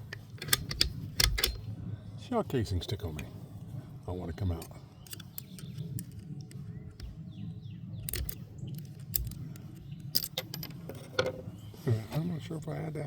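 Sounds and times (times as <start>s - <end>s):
rifle action metallic clicks: 0.0s - 1.6s, 4.6s - 7.1s, 8.0s - 10.8s
bird chirps: 4.3s - 10.2s.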